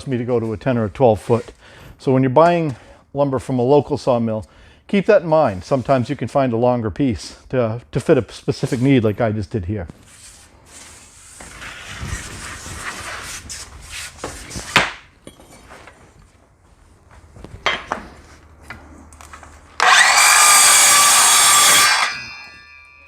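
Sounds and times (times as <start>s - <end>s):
circular saw cutting wood: 19.8s - 23.0s.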